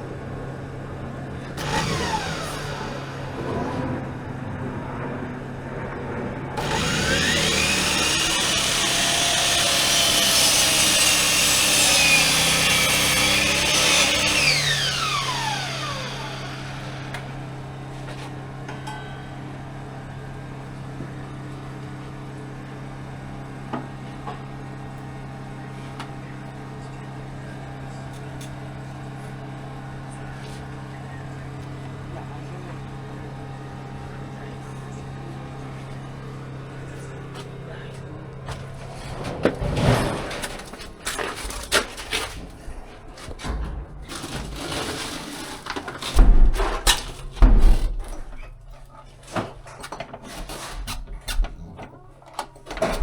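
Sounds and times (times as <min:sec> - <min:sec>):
power saw cutting wood: 0:01.5 - 0:04.2, 0:06.6 - 0:18.2, 0:44.1 - 0:47.2.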